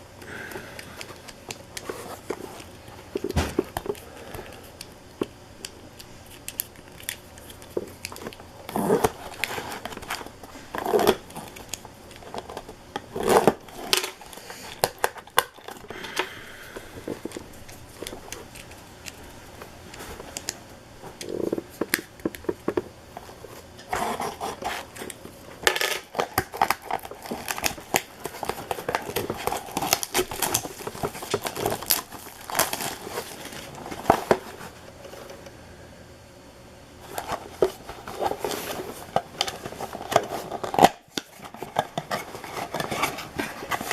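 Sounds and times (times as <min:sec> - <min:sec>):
cards clicking and rustling: 0:00.2 - 0:34.7
wrappers crinkling and tearing: 0:06.2 - 0:22.6, 0:23.2 - 0:34.8.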